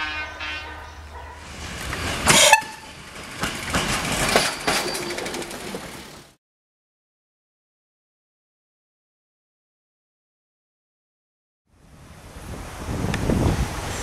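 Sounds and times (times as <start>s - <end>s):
locomotive horn: 0.0s - 1.5s, 2.2s - 2.9s
train wheels clattering over rails: 1.1s - 6.4s.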